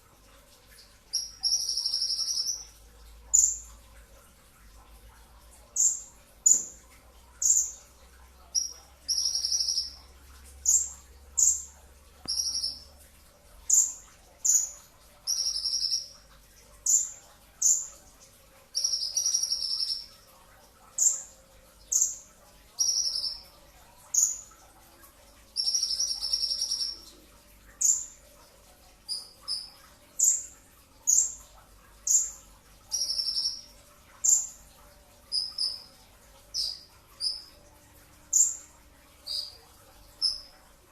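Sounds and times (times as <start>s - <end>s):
sunbird high sharp chirps: 1.2s - 2.7s, 8.6s - 10.0s.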